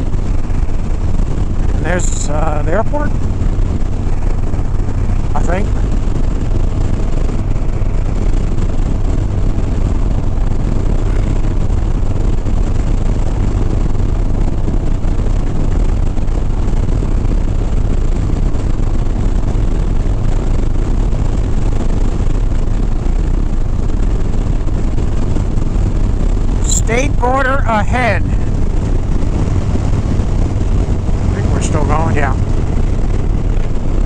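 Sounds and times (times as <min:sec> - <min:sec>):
motorcycle engine running: 0:00.0 - 0:34.0
road noise: 0:00.0 - 0:34.0
wind noise: 0:00.0 - 0:34.0.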